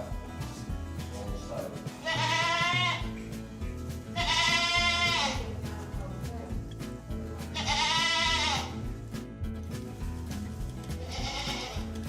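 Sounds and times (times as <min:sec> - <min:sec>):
goat bleating: 0:02.0 - 0:03.2, 0:04.2 - 0:05.5, 0:07.5 - 0:08.9, 0:11.0 - 0:12.0.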